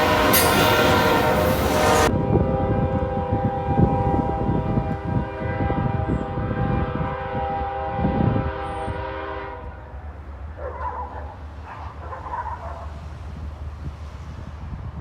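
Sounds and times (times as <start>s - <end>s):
locomotive air horn: 0.0s - 9.9s
train rumbling on rails: 0.0s - 15.0s.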